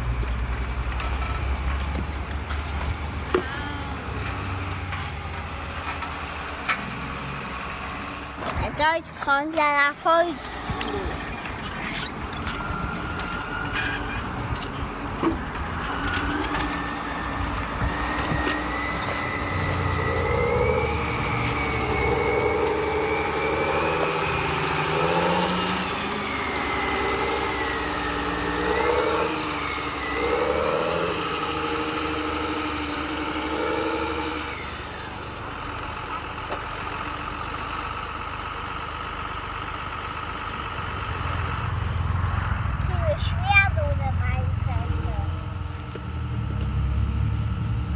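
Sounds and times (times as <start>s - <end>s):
vehicle engine running: 0.0s - 47.9s.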